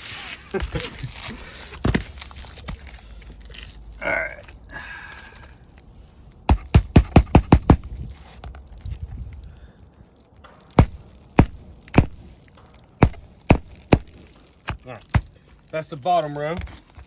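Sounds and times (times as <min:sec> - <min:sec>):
hammer driving roofing nails: 0:06.5 - 0:07.9, 0:10.5 - 0:15.3.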